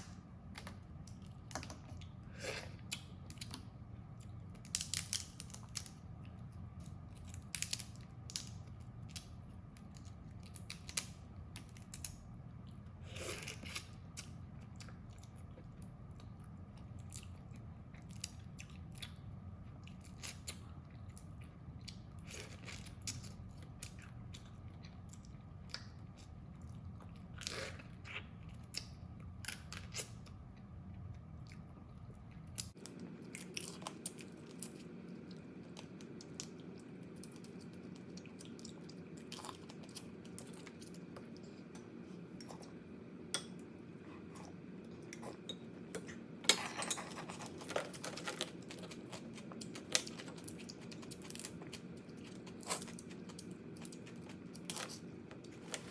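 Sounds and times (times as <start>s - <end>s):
low background hum: 0.0s - 55.9s
crab shell cracking: 4.6s - 6.0s, 7.2s - 8.6s.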